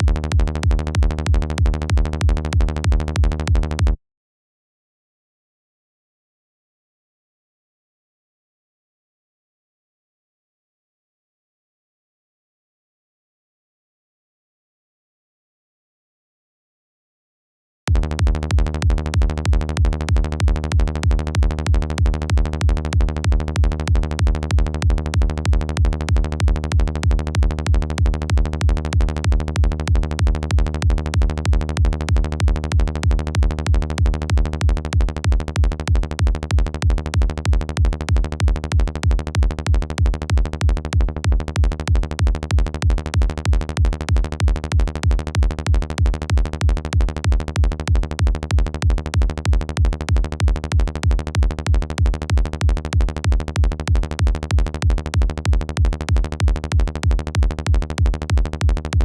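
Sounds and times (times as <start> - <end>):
electronic kick drum: 0.0 - 4.0, 17.9 - 59.0
synth bass: 0.0 - 4.0, 17.9 - 59.0.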